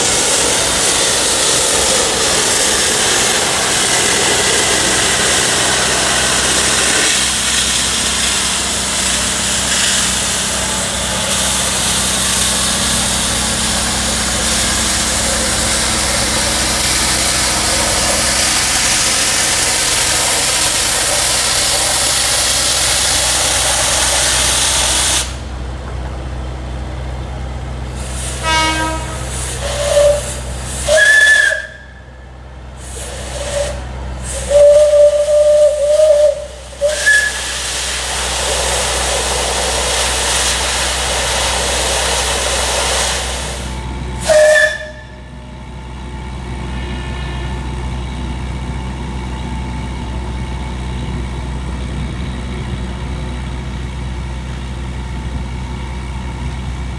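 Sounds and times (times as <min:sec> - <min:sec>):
steam venting hiss: 0:00.0 - 0:25.6, 0:27.9 - 0:45.4
steam whistle blasts: 0:28.0 - 0:45.4
low rumble: 0:45.1 - 0:53.7.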